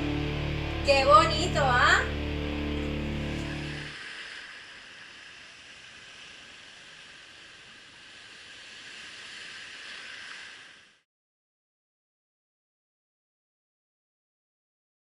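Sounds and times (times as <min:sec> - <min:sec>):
ocean surf washing on beach: 0:03.7 - 0:11.0.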